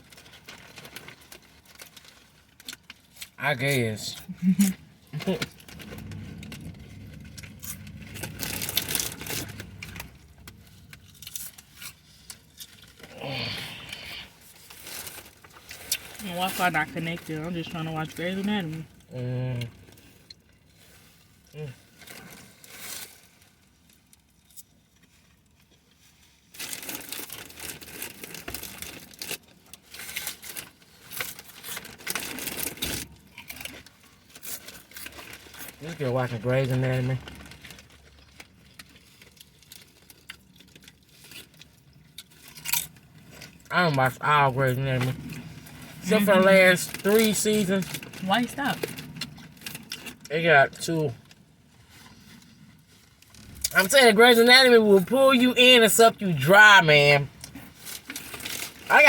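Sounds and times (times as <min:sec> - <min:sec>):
wrappers crinkling: 0:00.0 - 0:59.0
low steady hum: 0:00.2 - 0:21.4.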